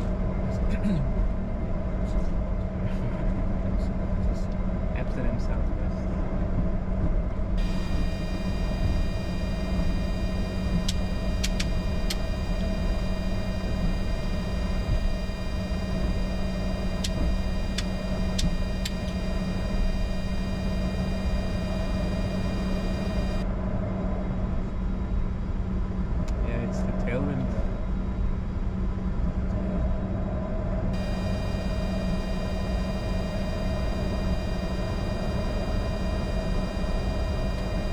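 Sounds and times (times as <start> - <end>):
jet engines idling rumble: 0.0 - 23.4, 31.0 - 37.9
sharp clicks: 7.6 - 23.4
faint high buzzing tone: 7.6 - 23.5, 31.0 - 37.9.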